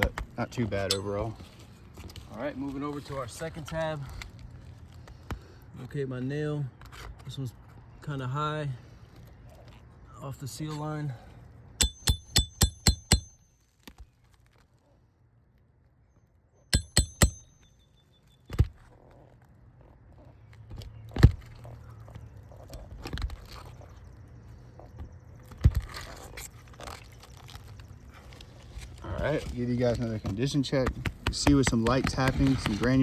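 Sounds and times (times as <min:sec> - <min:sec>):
hammer striking metal tool: 0:00.9 - 0:01.2, 0:11.8 - 0:13.4, 0:16.8 - 0:17.8.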